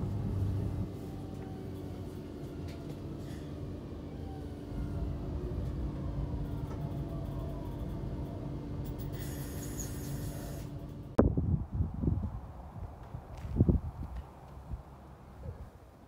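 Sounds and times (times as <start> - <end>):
train rumble inside carriage: 0.0 - 11.2
constant low hum: 0.0 - 16.0.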